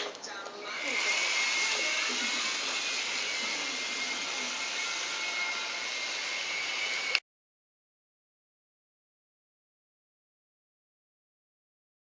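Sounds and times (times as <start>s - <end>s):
small electric motor whirring: 0.7s - 7.2s.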